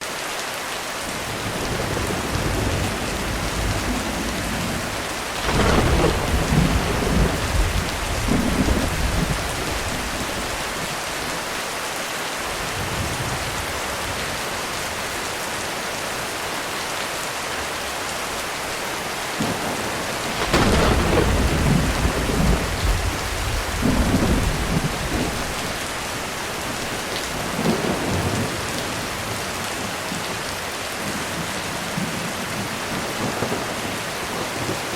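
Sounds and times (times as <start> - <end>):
heavy rain on roof: 0.0 - 34.9
thunder rumbling: 1.2 - 11.4, 19.3 - 30.4, 31.0 - 34.9.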